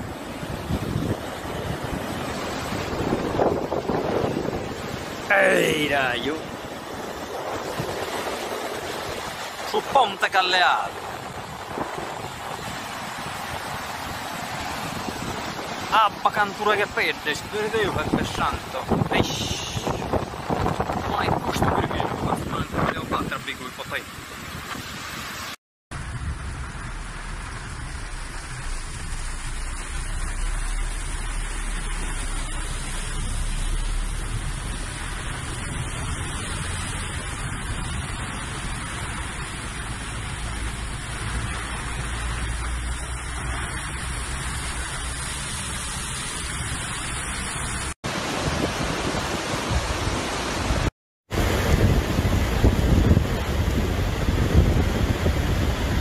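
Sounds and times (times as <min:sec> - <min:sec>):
rush of floodwater: 0:00.0 - 0:56.0
low rumble: 0:25.9 - 0:45.0
rain heard inside car: 0:26.0 - 0:36.4.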